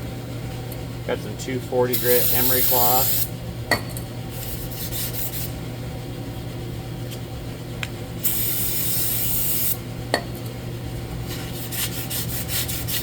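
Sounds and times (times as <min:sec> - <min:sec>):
aerosol can spraying: 0:02.0 - 0:03.3, 0:08.2 - 0:09.8.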